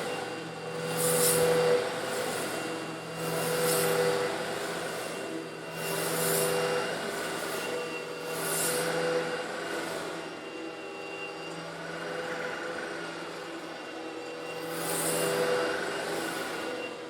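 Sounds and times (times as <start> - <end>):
grit rushing through vacuum: 0.0 - 11.2
vacuum cleaner motor hum: 0.0 - 17.0.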